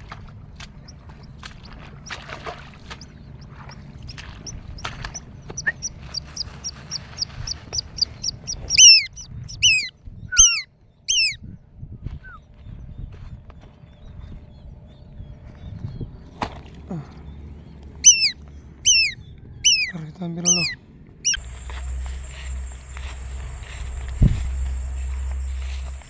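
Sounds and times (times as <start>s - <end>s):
loud falling bird calls: 1.2s - 11.4s, 18.0s - 26.0s
bird chirps: 2.8s - 11.4s, 18.0s - 26.0s.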